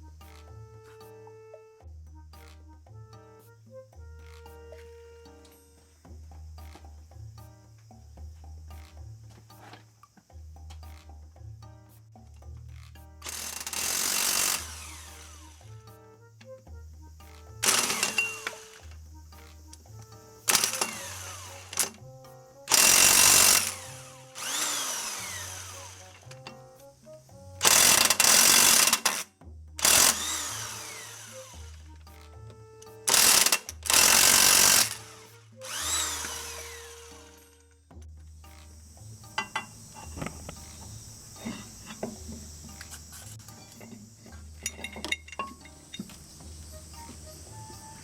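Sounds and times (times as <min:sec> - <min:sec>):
background music with bass line: 0:00.0 - 0:48.0
power tool bursts: 0:13.2 - 0:15.8, 0:17.6 - 0:18.9, 0:20.4 - 0:22.0, 0:22.7 - 0:26.6, 0:27.6 - 0:31.9, 0:33.0 - 0:37.7
tool spinning down whine: 0:13.2 - 0:15.8, 0:17.6 - 0:19.0, 0:20.5 - 0:22.0, 0:22.7 - 0:26.5, 0:27.6 - 0:31.8, 0:33.1 - 0:37.6.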